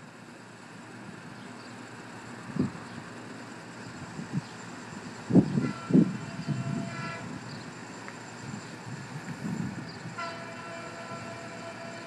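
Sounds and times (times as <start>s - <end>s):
diesel train rumbling: 0.0s - 12.0s.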